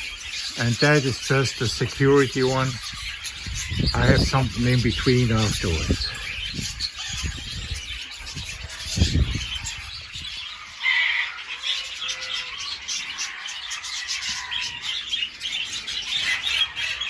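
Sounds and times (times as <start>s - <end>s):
budgerigars chattering and squawking: 0.0s - 17.0s.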